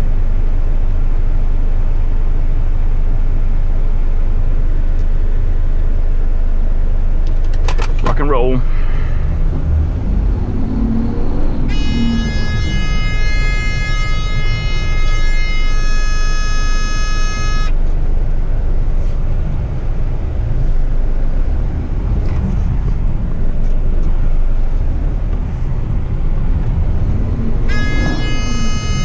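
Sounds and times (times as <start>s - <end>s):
truck engine rumble: 4.6s - 29.0s
high warning alarm tone: 8.3s - 19.1s, 25.8s - 29.0s.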